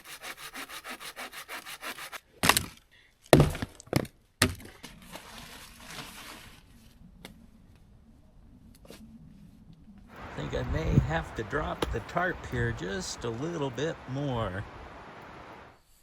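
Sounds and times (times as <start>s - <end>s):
hand saw cutting wood: 0.0s - 2.3s.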